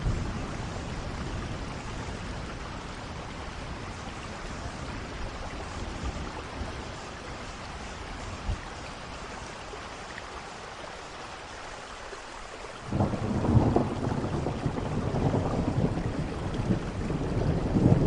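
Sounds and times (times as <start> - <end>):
steady rain falling: 0.0 - 18.0
loud thunder rumble: 12.9 - 18.0.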